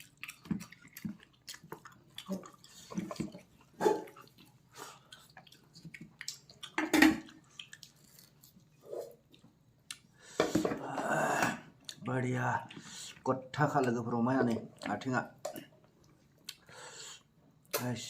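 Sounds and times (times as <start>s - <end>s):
person chewing: 0.0s - 10.2s, 15.6s - 17.3s.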